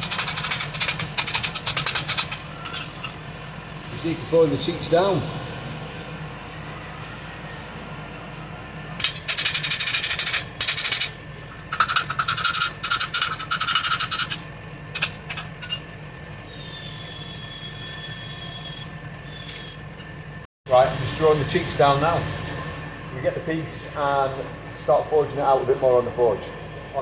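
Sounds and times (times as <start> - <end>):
steel tools scraping on metal: 0.0 - 3.3, 9.0 - 20.2
low machine hum: 0.0 - 27.0.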